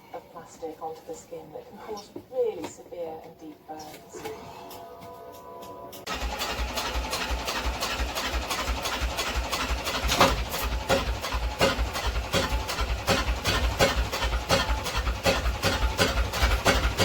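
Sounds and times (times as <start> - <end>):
boat engine chugging: 6.1 - 17.0.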